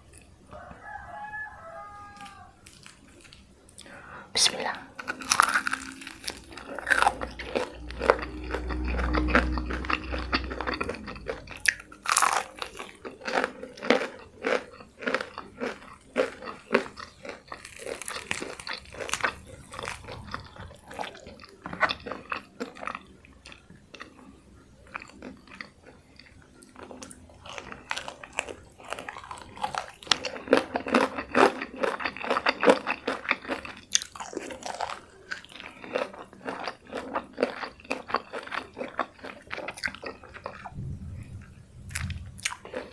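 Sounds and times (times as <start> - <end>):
crunchy chewing: 0.0 - 42.9
low muffled rumble: 4.9 - 13.0, 18.2 - 22.2, 40.6 - 42.9.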